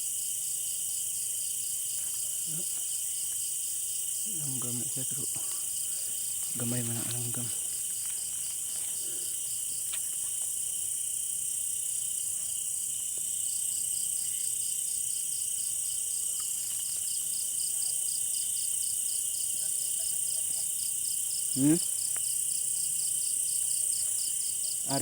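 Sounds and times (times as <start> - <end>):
crickets trilling: 0.0 - 25.0
pulsing insect call: 2.3 - 12.2, 21.5 - 22.0.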